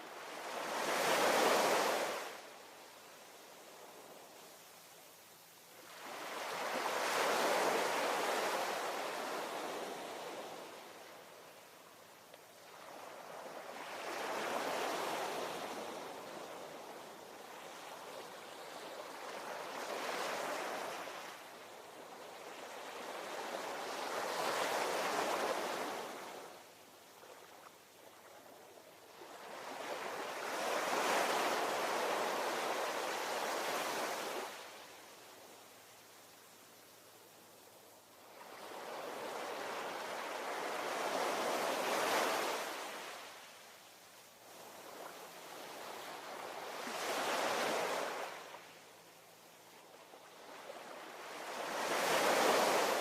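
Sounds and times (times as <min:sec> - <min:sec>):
ocean waves washing ashore: 0:44.5 - 0:48.8, 0:50.1 - 0:53.0.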